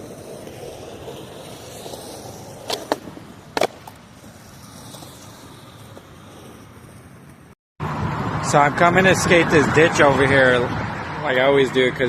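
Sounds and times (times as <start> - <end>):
skateboard clacking on ground: 0.0 - 7.5
skateboard wheels rolling on pavement: 0.0 - 12.0.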